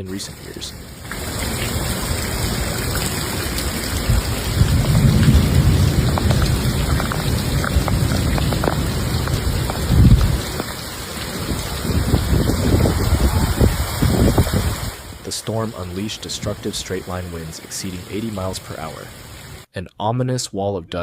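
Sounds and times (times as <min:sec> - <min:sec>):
heavy rain pouring: 0:00.0 - 0:19.7
thunder rumbling: 0:01.1 - 0:17.1.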